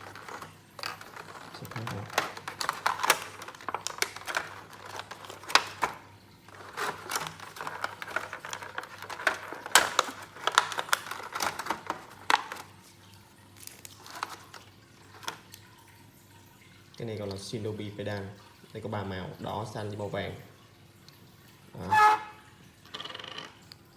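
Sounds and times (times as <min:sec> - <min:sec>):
plastic toy parts clicking: 0:00.0 - 0:12.7, 0:13.7 - 0:15.6
plastic packaging crinkling: 0:00.0 - 0:15.8.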